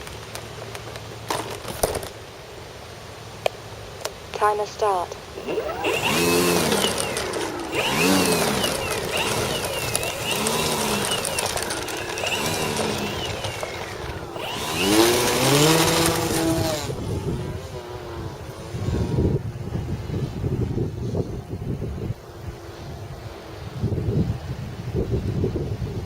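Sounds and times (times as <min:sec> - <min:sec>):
model plane motor whining: 0:05.3 - 0:21.2
wind gusts on microphone: 0:05.3 - 0:26.0.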